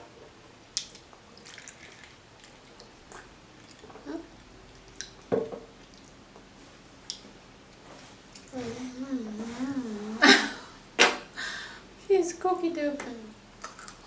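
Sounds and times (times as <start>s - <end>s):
people chewing and mouth-smacking: 0.7s - 8.6s.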